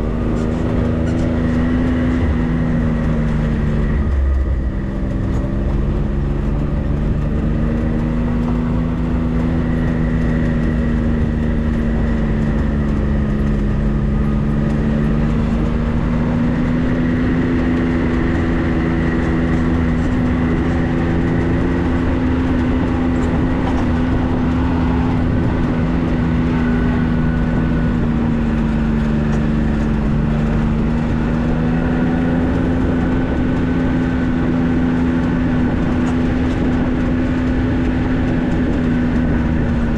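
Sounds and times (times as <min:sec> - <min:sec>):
road rumble: 0:00.0 - 0:39.9
vehicle engine running: 0:00.0 - 0:39.9.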